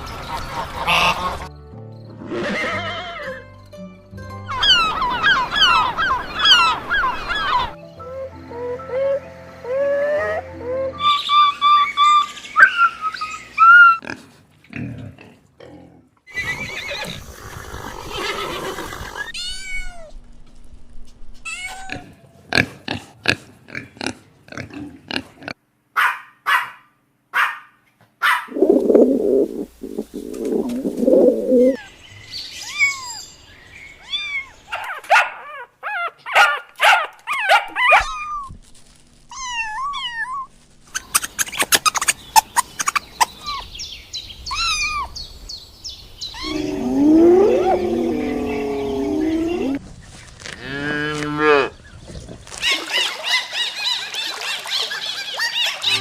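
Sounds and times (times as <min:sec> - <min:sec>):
low rough animal calling: 0:28.5 - 0:31.8, 0:46.3 - 0:49.8
high animal chirps: 0:46.3 - 0:49.8.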